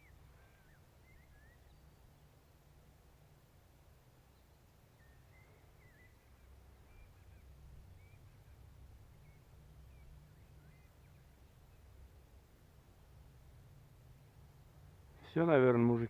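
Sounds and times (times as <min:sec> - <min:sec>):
faint bird chirps: 0:00.0 - 0:02.5, 0:04.1 - 0:13.4
low steady rumble: 0:00.0 - 0:16.0.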